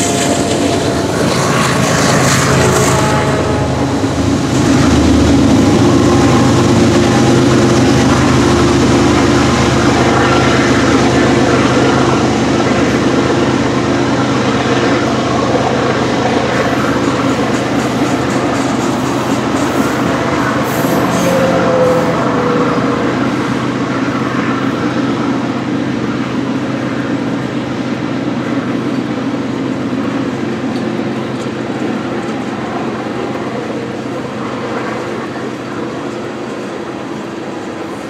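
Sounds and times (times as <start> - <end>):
freight train wheels rumbling: 0.0 - 38.0
faint squeal: 20.5 - 23.7.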